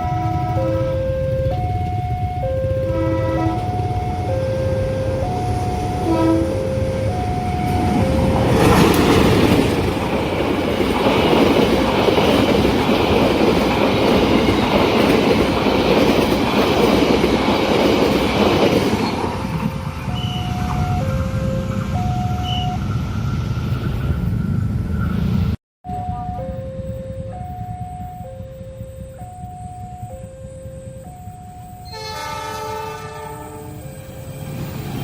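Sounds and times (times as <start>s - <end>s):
level crossing warning chime: 0.0s - 9.0s, 19.6s - 22.8s, 25.9s - 32.2s, 33.2s - 35.0s
train passing: 0.0s - 35.0s.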